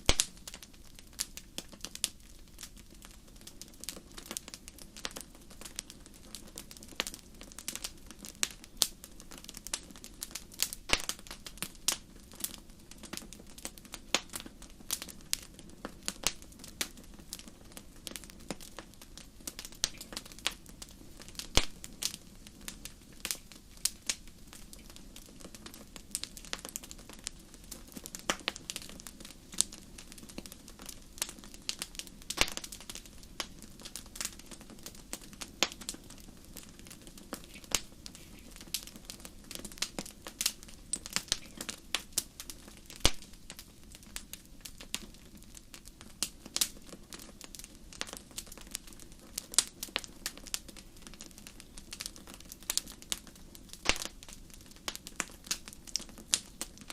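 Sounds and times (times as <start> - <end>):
campfire crackling and popping: 0.0 - 56.9.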